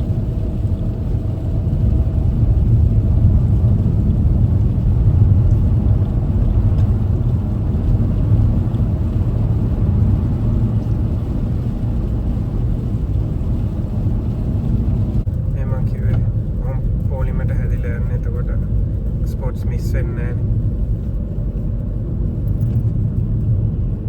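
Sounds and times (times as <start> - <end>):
car driving heard from inside: 0.0 - 24.0.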